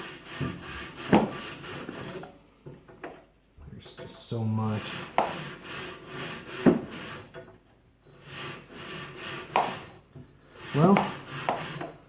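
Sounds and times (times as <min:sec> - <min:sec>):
brush scrubbing coils: 0:00.0 - 0:02.2, 0:03.8 - 0:07.3, 0:08.2 - 0:12.0
brush knocking on coils: 0:10.7 - 0:12.0.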